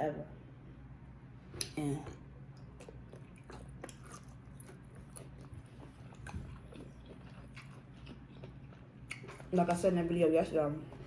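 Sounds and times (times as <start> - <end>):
chewing food: 1.6 - 9.9.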